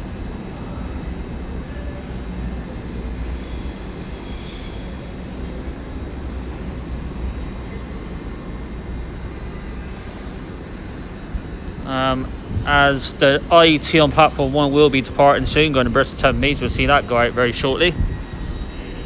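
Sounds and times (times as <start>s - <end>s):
train low rumble: 0.0s - 19.0s
high-pitched wheel squeal: 3.3s - 5.2s.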